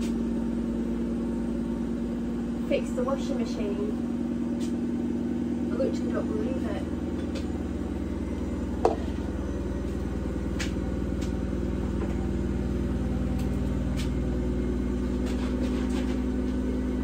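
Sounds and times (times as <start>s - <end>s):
washing machine motor drone: 0.0s - 17.0s.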